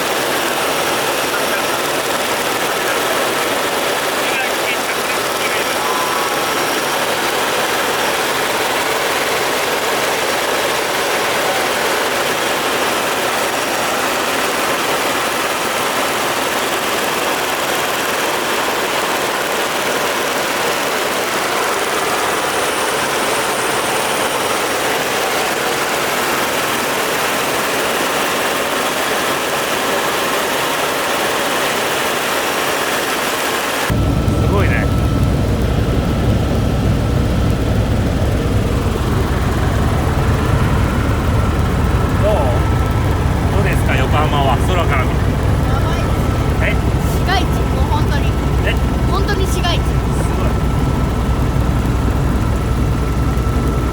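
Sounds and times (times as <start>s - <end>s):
helicopter engine and rotor: 0.0s - 53.9s.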